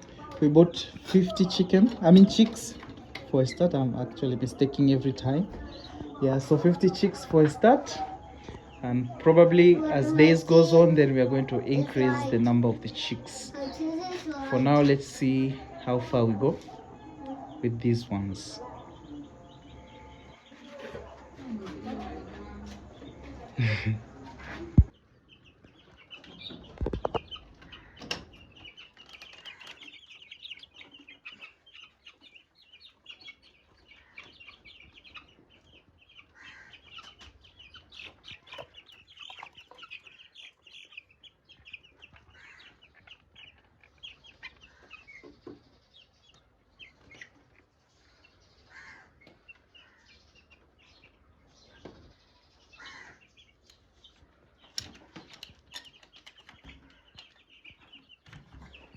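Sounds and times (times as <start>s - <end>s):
chicks peeping: 0.0s - 58.9s.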